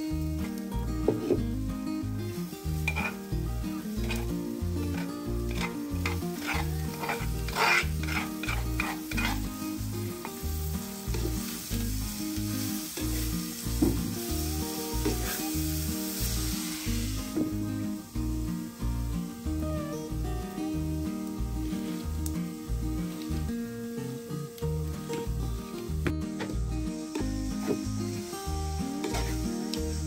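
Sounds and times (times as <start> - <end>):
beans sizzling in oil: 0.0 - 30.0
soft background music: 0.0 - 30.0
wooden spoon scraping clay bowl: 2.9 - 3.2, 5.0 - 9.4.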